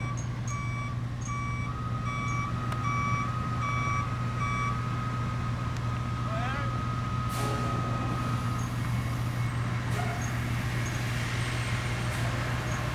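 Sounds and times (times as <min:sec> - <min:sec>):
reversing alarm beeping: 0:00.0 - 0:05.5.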